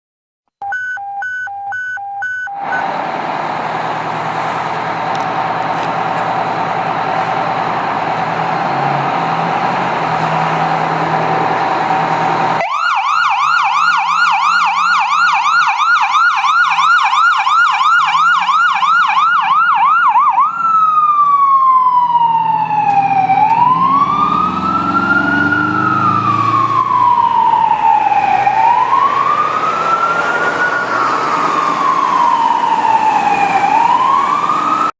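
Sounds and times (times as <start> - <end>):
fire engine siren: 0.6 - 34.9
truck engine running: 2.6 - 12.6, 20.4 - 34.9.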